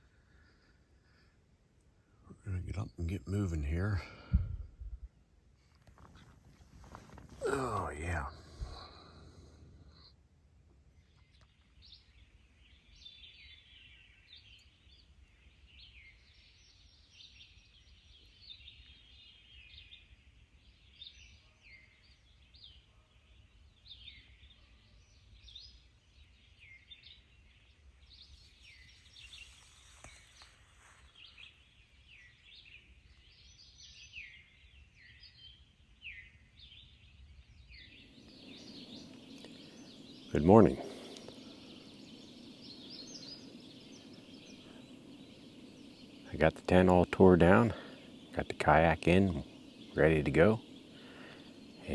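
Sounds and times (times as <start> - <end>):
bird chorus chirping: 2.4 - 4.3, 6.0 - 10.1, 31.1 - 51.9.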